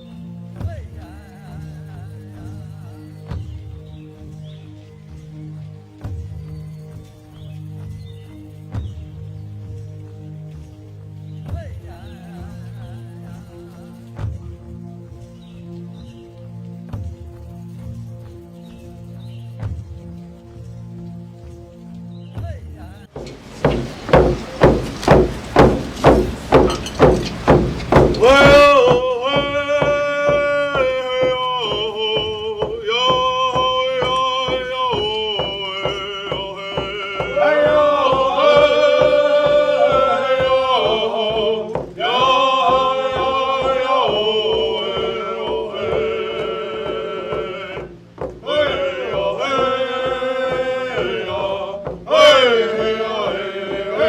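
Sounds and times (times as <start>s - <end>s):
man chanting song: 22.8s - 54.0s
drum beating steadily: 23.1s - 54.0s.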